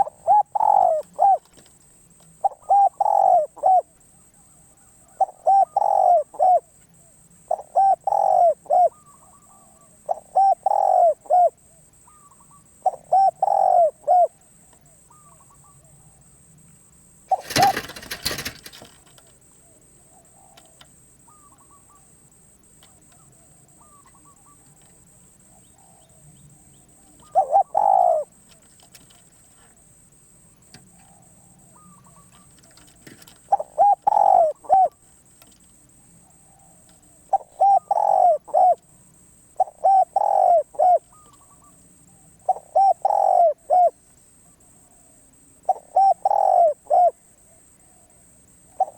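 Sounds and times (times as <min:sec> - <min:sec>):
dove cooing: 0:00.0 - 0:01.8, 0:02.4 - 0:16.2, 0:17.3 - 0:29.7, 0:30.8 - 0:35.0, 0:36.2 - 0:38.9, 0:39.5 - 0:44.0, 0:45.0 - 0:48.9
faint bird calls: 0:00.0 - 0:16.4, 0:17.3 - 0:29.9, 0:30.6 - 0:48.9
rustling: 0:17.3 - 0:19.4.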